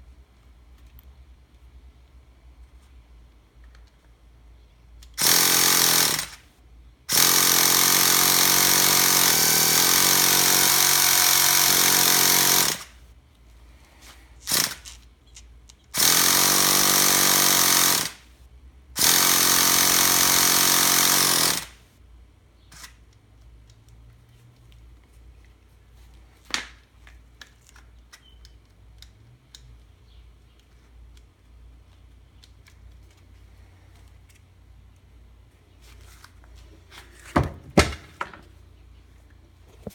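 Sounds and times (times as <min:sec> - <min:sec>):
electric starter whirring: 0:05.2 - 0:06.4, 0:19.0 - 0:21.8
small handling clicks: 0:14.7 - 0:16.0, 0:22.7 - 0:35.1.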